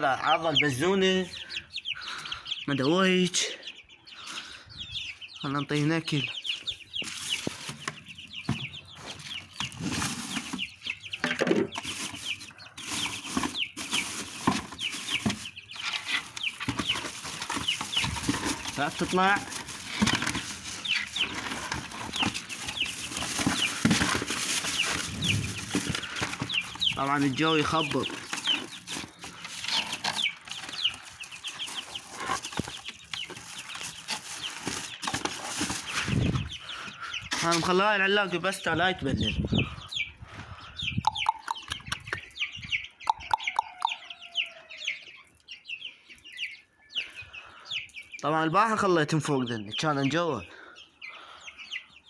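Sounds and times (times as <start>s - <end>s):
chicks peeping: 0.0s - 52.0s
rustling: 6.8s - 36.6s.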